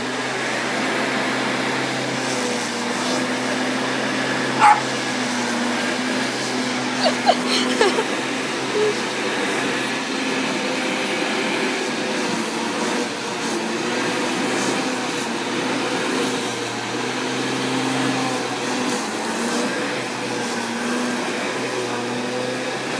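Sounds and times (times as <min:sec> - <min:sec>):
lawnmower humming: 0:00.0 - 0:22.9
dog barking and yipping: 0:04.5 - 0:05.1, 0:07.0 - 0:08.0.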